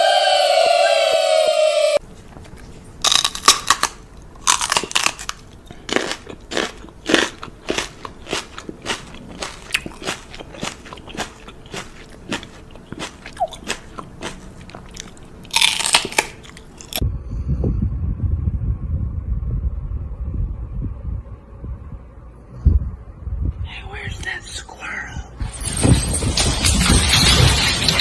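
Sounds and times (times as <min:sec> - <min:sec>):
crunchy chewing: 0:02.3 - 0:17.0.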